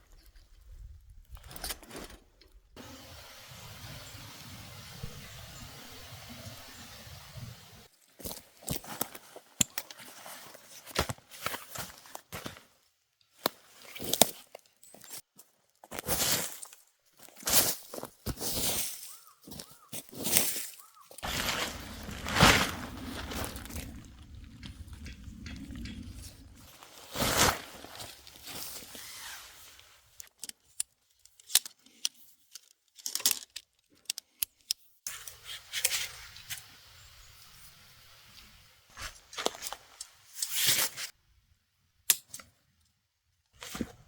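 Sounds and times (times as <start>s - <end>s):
rustling and crinkling: 7.9s - 34.4s, 38.3s - 41.1s
low steady rumble: 21.3s - 26.7s.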